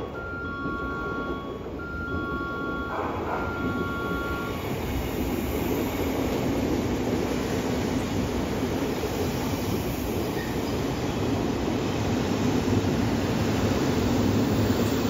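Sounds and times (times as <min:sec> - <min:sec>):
two-tone platform warning beeps: 0:00.0 - 0:05.0
train wheels rumbling on rail: 0:00.0 - 0:15.0.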